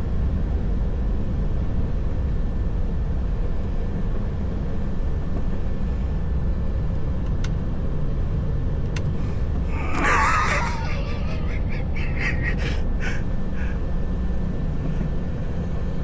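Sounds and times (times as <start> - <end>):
truck diesel engine rumbling: 9.1 - 16.0.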